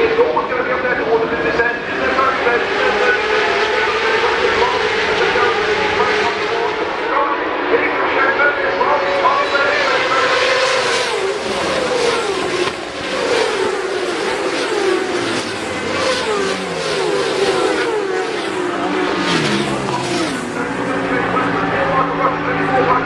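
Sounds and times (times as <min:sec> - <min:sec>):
motorbikes racing past: 0:09.0 - 0:23.0.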